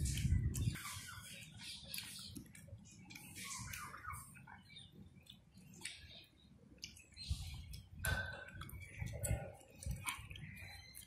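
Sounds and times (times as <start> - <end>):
child chewing with mouth clicks: 0.0 - 11.0.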